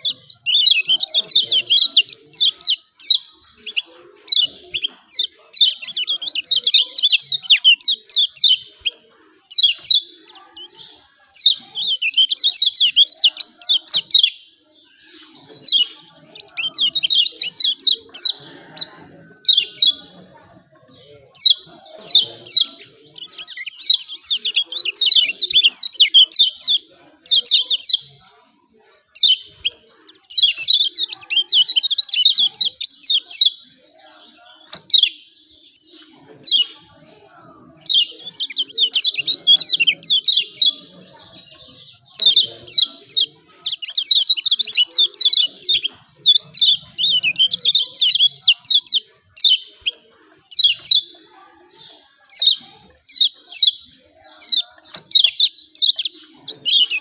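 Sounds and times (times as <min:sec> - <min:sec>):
bird chattering call: 0:00.0 - 0:20.8, 0:37.8 - 0:57.0.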